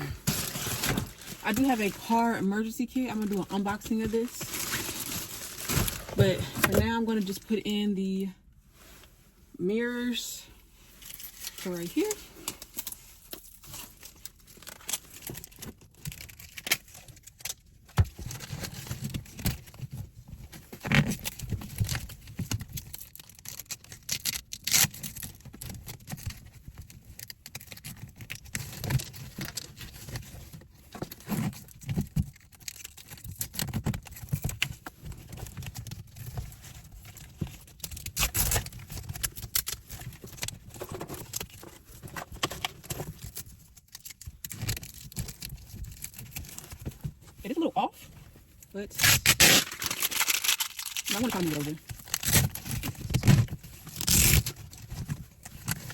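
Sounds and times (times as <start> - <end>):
rustling: 0.0 - 6.9, 18.1 - 55.9.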